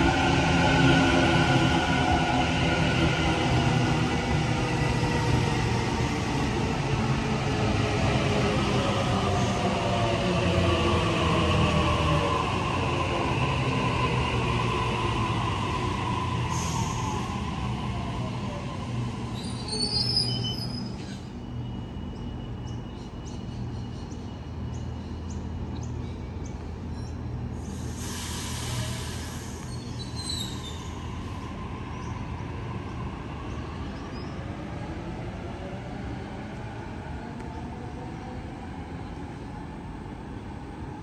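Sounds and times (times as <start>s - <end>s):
train wheels squealing on rails: 0.0s - 32.5s
brief hiss: 27.6s - 29.8s.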